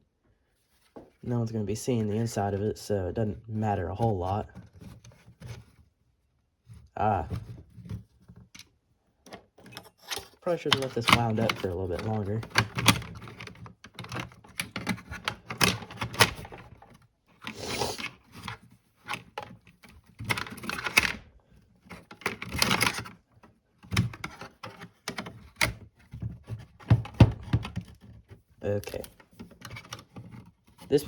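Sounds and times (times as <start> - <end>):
short scraping rubs: 17.5 - 18.1
clicks and knocks on plastic case: 21.9 - 30.8.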